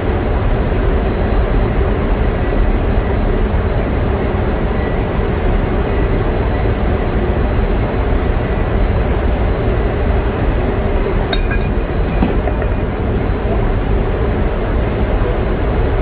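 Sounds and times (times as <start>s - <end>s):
light metallic clinks: 11.3s - 13.6s.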